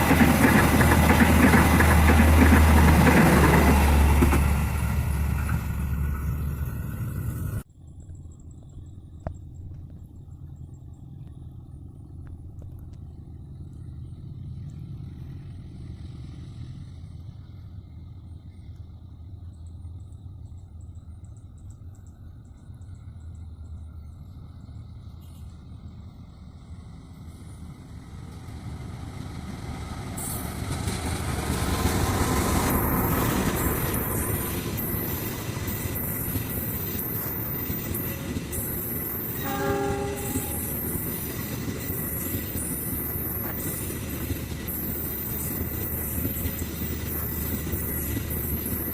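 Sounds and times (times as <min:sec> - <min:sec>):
hiss of wheels on rails: 0:00.0 - 0:07.6, 0:23.8 - 0:48.9
train engine rumble: 0:00.0 - 0:48.9.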